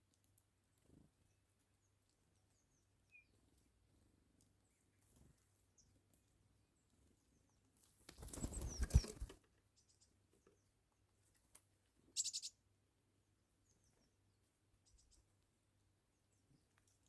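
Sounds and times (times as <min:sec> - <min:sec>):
faint bird chirps: 0:01.2 - 0:03.6, 0:06.7 - 0:11.1, 0:12.1 - 0:12.7, 0:13.5 - 0:15.5
bird wings flapping: 0:08.0 - 0:09.4.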